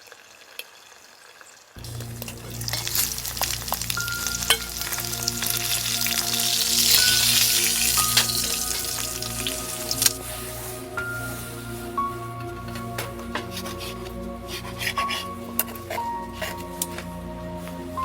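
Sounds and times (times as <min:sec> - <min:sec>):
food sizzling in a pan: 0:00.1 - 0:12.2
soft musical drone: 0:01.8 - 0:18.0.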